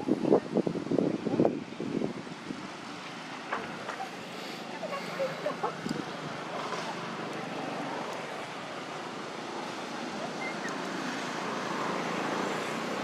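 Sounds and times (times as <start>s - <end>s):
wind on microphone: 0.0s - 2.9s.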